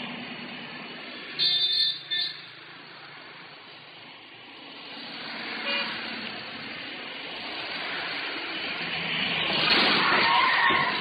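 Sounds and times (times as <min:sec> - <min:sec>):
road traffic passing: 0:00.0 - 0:11.0
car horn toot: 0:01.4 - 0:02.5, 0:05.6 - 0:06.0.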